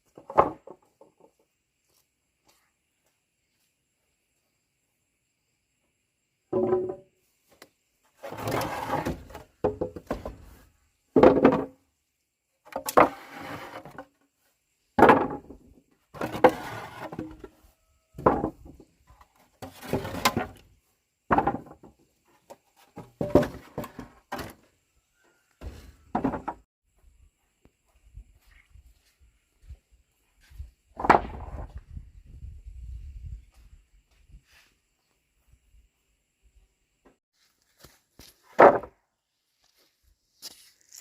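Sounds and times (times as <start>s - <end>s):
building work scrapes and knocks: 8.0s - 11.8s, 12.7s - 14.2s, 15.0s - 26.7s.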